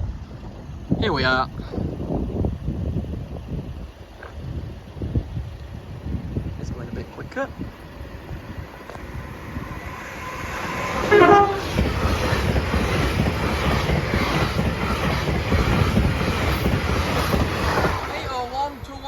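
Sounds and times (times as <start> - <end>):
train wheels rumbling on rails: 0.0 - 19.0
train horn blast: 10.2 - 12.1.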